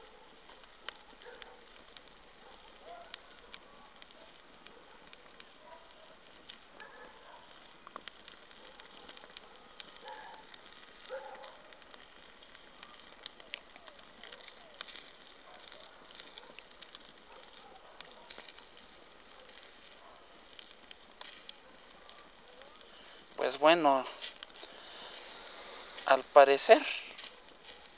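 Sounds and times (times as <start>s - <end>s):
wood fire crackling and popping: 0.0s - 27.9s.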